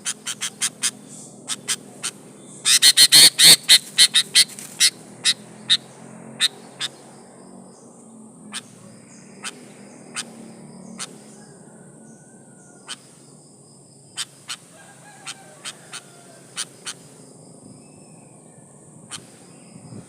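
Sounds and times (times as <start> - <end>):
bird sharp chips: 0.1 - 5.4.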